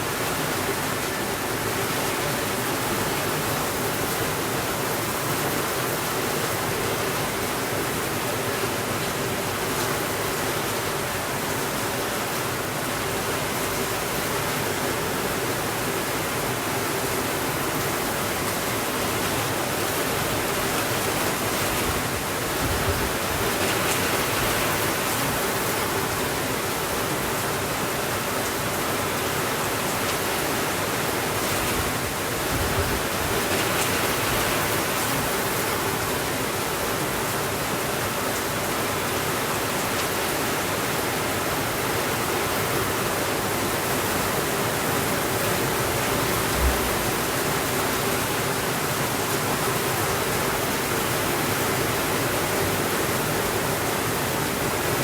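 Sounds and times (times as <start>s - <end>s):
rain hiss: 0.0s - 55.0s
low thump: 46.5s - 47.3s.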